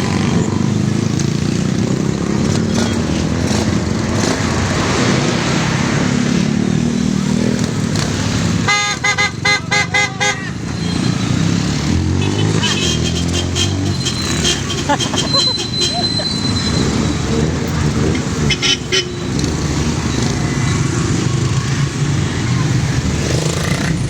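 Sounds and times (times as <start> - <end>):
motorcycle engines running: 0.0 - 24.0
horn short beeps: 12.2 - 17.4, 18.4 - 19.5.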